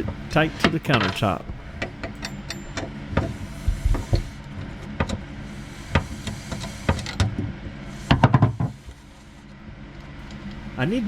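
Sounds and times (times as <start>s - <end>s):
hand tools clicking and knocking: 0.0s - 4.3s
steady low hum: 0.0s - 11.0s.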